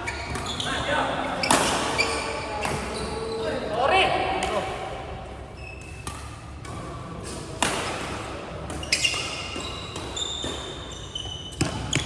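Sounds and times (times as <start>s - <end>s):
shoes squeaking on court floor: 0.0s - 4.0s, 5.5s - 7.6s, 8.6s - 12.0s
racket hitting shuttlecock: 1.3s - 2.9s, 5.8s - 12.0s.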